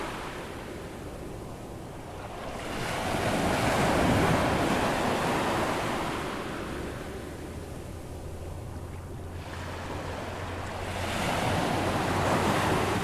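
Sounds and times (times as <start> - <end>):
ocean waves breaking: 9.4 - 13.0.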